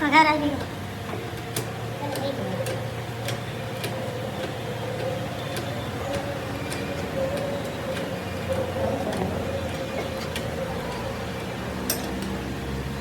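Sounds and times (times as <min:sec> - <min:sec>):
machine hum: 0:00.0 - 0:13.0
sharp clicks and ticks: 0:00.5 - 0:11.2.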